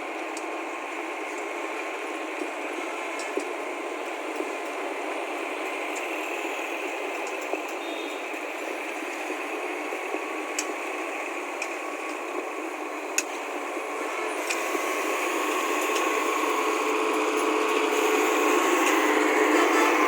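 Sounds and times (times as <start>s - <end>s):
heavy machine rumbling: 0.0s - 20.0s
scattered clicks: 2.4s - 4.8s, 5.9s - 6.2s, 6.8s - 9.3s, 10.5s - 10.9s, 14.4s - 14.7s, 15.7s - 16.3s.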